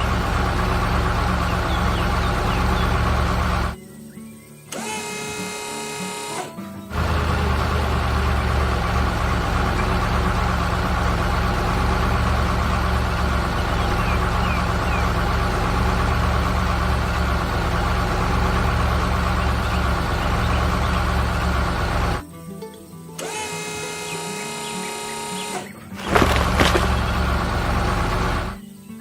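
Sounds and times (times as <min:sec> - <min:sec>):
heavy vehicle engine idling: 0:00.0 - 0:03.8, 0:06.9 - 0:22.2, 0:25.3 - 0:28.6.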